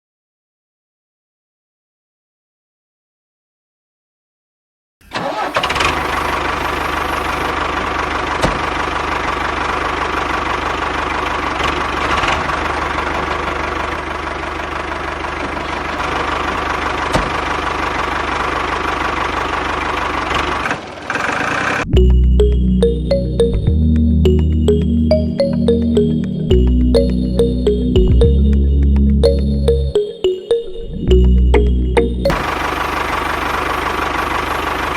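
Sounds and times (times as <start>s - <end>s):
tractor engine running: 5.0s - 30.0s, 31.1s - 34.9s
music: 21.9s - 32.5s.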